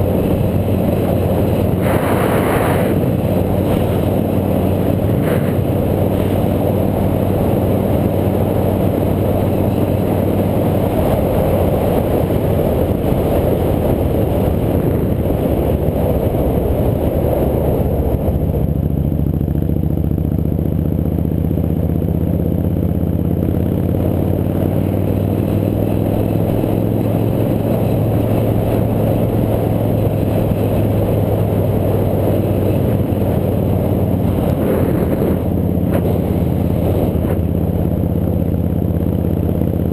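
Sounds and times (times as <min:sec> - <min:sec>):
steady rush of noise: 0:00.0 - 0:18.8, 0:23.8 - 0:39.9
motorcycle engine running: 0:00.0 - 0:39.9.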